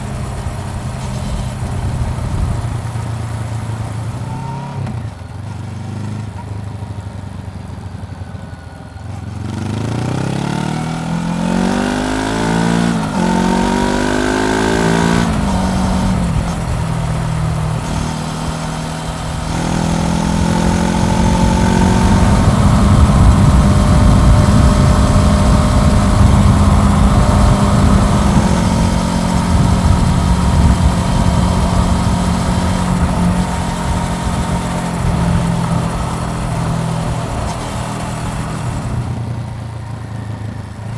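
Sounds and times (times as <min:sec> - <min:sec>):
wind rushing over microphone: 0:00.0 - 0:03.0, 0:11.6 - 0:39.1
motorcycle engine revving through gears: 0:00.0 - 0:40.9.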